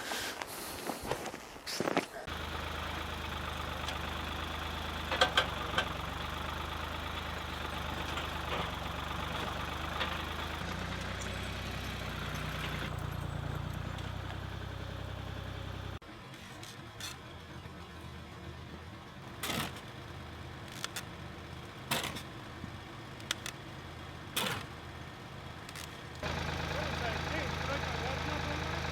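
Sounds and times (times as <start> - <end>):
sawmill engine running: 2.3 - 16.0, 26.1 - 28.9.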